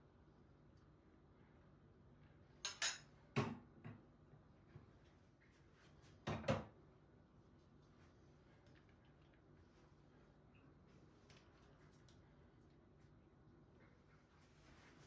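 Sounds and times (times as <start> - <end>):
kitchenware clinking: 2.7 - 3.1.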